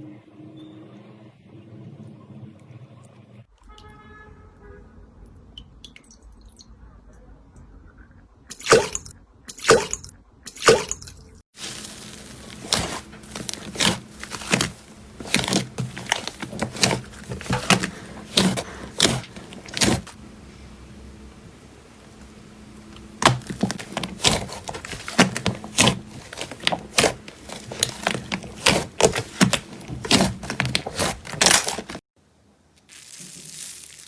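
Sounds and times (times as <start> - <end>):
slime squelching and popping: 8.5 - 11.0, 11.6 - 20.2, 22.1 - 32.0.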